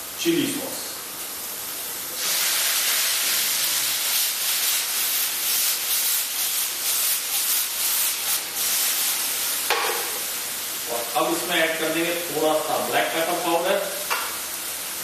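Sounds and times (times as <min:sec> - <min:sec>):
sauce sizzling in a hot pan: 0:01.2 - 0:10.9, 0:13.8 - 0:15.0.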